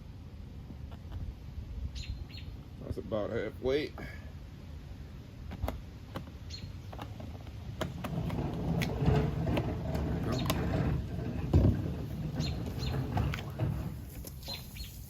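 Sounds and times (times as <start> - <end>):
hard plastic clicking and creaking: 5.5 - 14.4.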